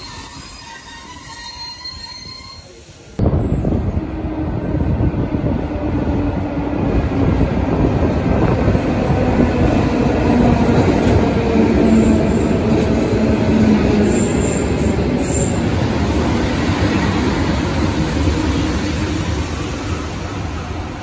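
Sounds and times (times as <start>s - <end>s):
high wheel squeals: 0.0s - 2.8s
train wheels rumbling on rail: 0.0s - 21.0s.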